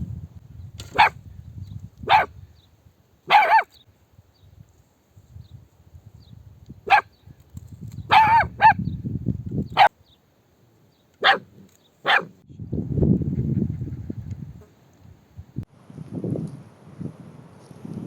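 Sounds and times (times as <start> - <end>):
dog barking: 1.0 - 1.2, 2.1 - 2.3, 3.3 - 3.7, 6.9 - 7.1, 8.1 - 8.8, 11.2 - 12.4.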